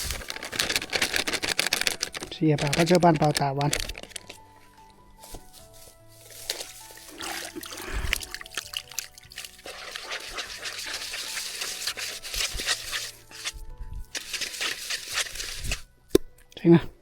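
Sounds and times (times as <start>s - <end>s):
grains splattering onto water: 0.0s - 4.4s, 6.4s - 13.5s.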